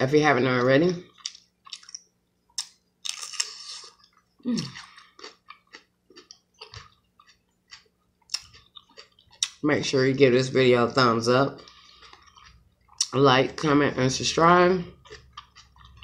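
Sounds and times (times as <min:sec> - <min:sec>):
chewing and crunching seafood: 0:00.8 - 0:09.9, 0:11.4 - 0:13.6, 0:14.8 - 0:16.0.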